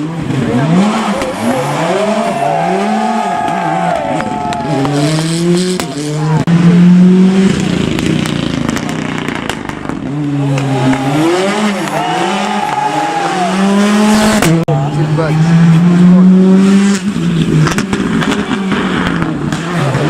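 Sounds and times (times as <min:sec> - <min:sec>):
rally car engine revving: 0:00.0 - 0:20.0
sharp exhaust cracks: 0:07.4 - 0:11.1.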